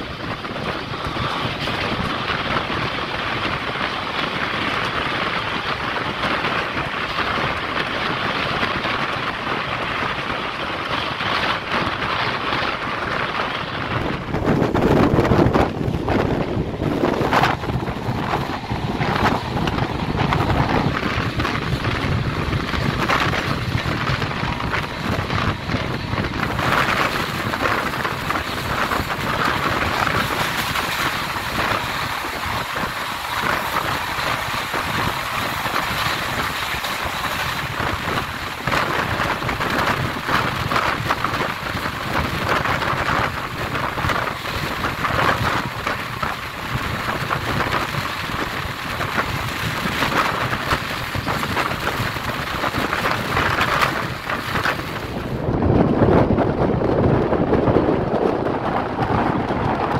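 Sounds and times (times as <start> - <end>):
train wheels rushing on rails: 0.0 - 59.9
wind noise: 0.0 - 59.9.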